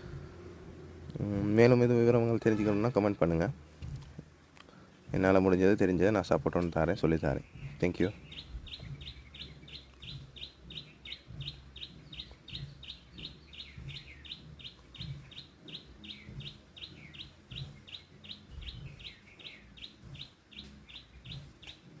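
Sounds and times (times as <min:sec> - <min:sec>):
chicks peeping: 0:06.6 - 0:22.0.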